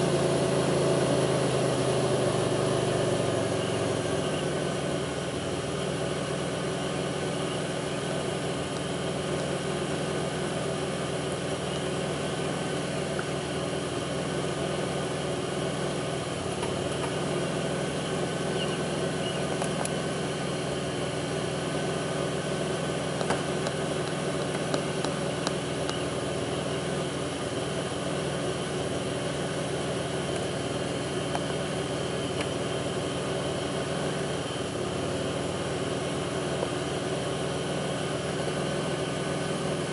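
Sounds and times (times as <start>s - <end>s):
car engine idling roughly: 0.0s - 39.9s
faint engine thumping: 7.4s - 28.0s.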